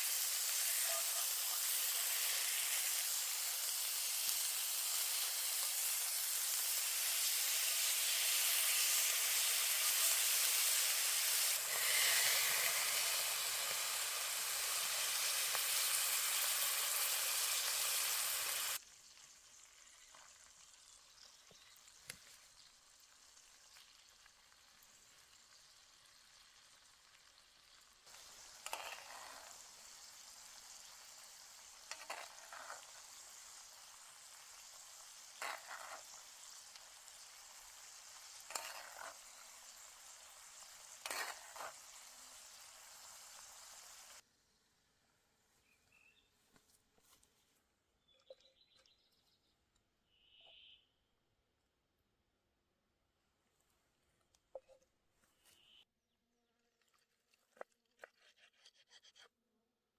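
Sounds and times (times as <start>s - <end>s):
food sizzling in a skillet: 0.0s - 44.2s.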